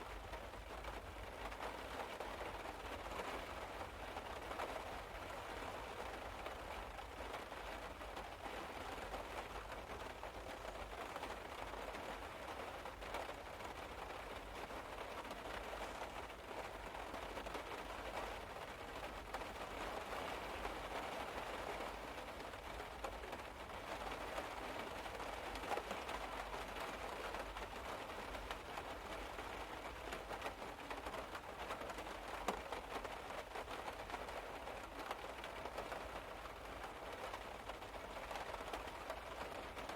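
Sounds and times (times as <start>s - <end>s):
rain on car roof: 0.0s - 39.9s.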